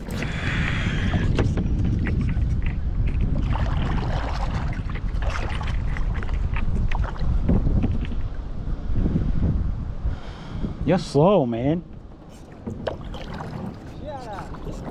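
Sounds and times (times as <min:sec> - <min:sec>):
kayak paddle splashing in water: 0:03.1 - 0:07.4, 0:12.1 - 0:14.9.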